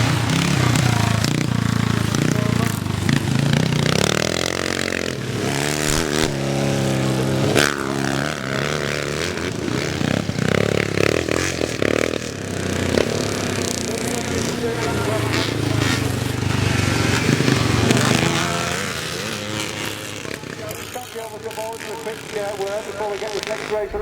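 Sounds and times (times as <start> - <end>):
motorcycle engines revving: 0.0 - 24.0
sharp crack: 5.4 - 7.9.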